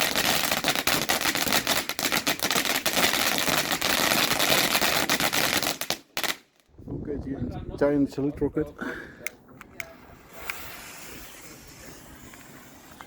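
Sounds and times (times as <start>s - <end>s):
fireworks crackling: 0.0s - 6.6s, 9.7s - 13.0s.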